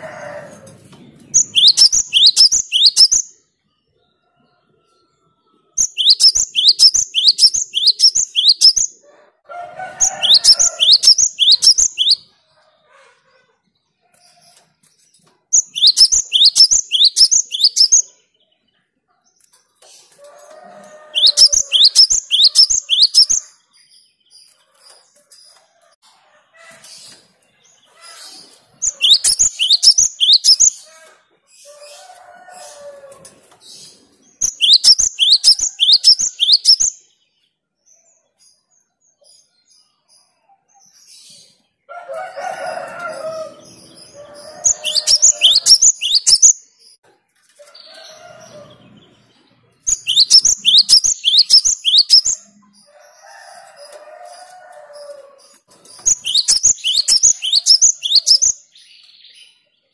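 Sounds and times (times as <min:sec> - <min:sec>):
soft chattering bird calls: 0:00.0 - 0:03.4, 0:05.7 - 0:09.0, 0:10.1 - 0:13.1, 0:14.0 - 0:23.8, 0:26.7 - 0:36.9, 0:42.6 - 0:47.0, 0:47.6 - 0:59.0
bird singing high sharp notes: 0:01.3 - 0:03.3, 0:05.8 - 0:08.9, 0:10.2 - 0:12.3, 0:15.6 - 0:18.1, 0:21.2 - 0:23.5, 0:28.8 - 0:30.8, 0:34.4 - 0:37.0, 0:43.8 - 0:46.6, 0:49.9 - 0:52.5, 0:56.0 - 0:58.6.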